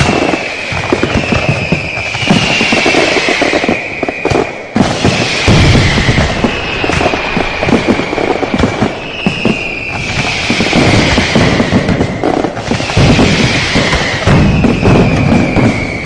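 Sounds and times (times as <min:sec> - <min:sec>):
falling whistles: 0:00.0 - 0:16.0
fireworks bang: 0:00.0 - 0:16.0
fireworks crackling and popping: 0:00.0 - 0:16.0
low rumbling booms: 0:04.8 - 0:16.0.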